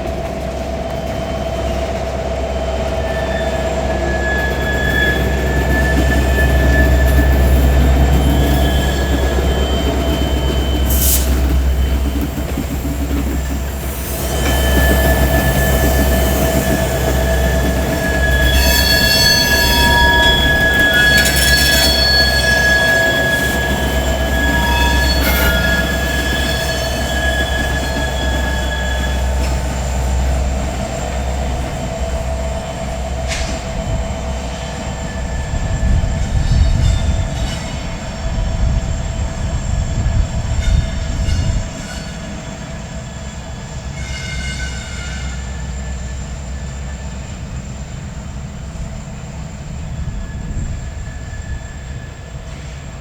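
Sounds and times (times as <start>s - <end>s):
freight cars rolling: 0.0s - 39.2s
steel wheels squealing on rails: 0.0s - 53.0s.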